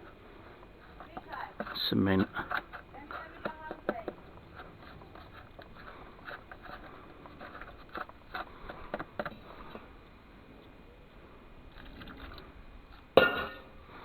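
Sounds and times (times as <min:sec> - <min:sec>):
tool scraping and tapping dry mix: 0:00.0 - 0:10.0.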